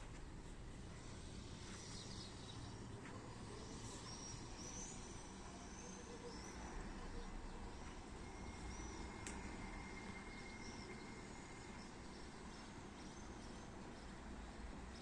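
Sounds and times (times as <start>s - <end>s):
low background noise: 0.0s - 15.0s
swallows twittering: 1.4s - 9.1s.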